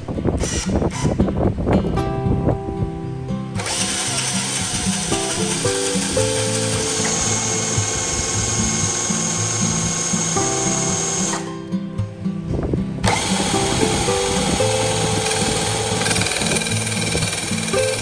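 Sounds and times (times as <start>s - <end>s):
music with steady beat: 2.0s - 18.0s
power tool whining: 3.6s - 10.4s, 13.0s - 18.0s.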